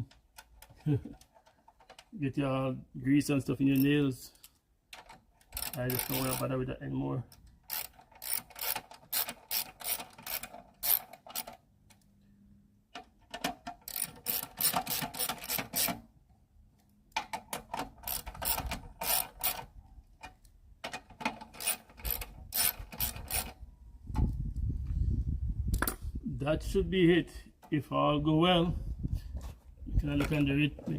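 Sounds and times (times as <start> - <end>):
ratchet wrench clicking: 5.6 - 6.5, 7.7 - 11.5, 13.9 - 15.9, 18.0 - 19.6, 21.6 - 23.5.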